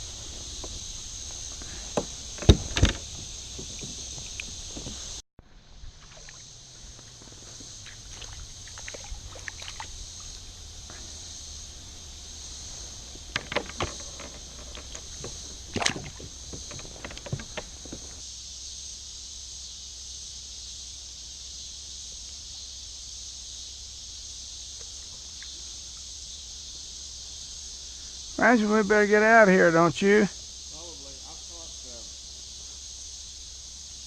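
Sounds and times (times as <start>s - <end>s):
kayak and paddle knocks and splashes: 0.0s - 5.2s, 5.9s - 10.4s, 12.8s - 18.2s
high insect drone: 0.0s - 34.0s.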